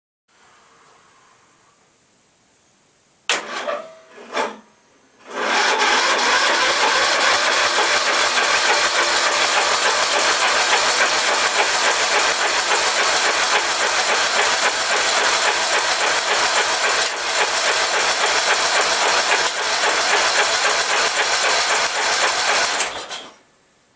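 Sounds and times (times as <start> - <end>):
electric starter cranking engine: 5.2 - 23.4.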